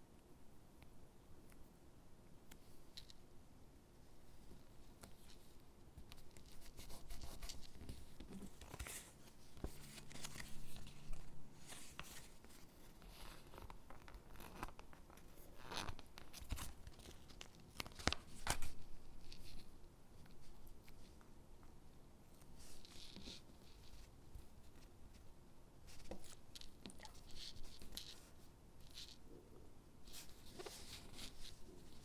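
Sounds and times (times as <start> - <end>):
paper rustling: 6.1 - 14.8.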